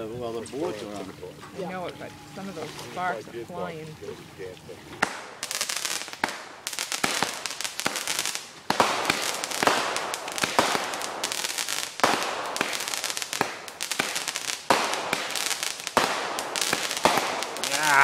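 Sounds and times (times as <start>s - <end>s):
fireworks bursting: 5.0s - 18.0s
fireworks crackling: 5.0s - 18.0s.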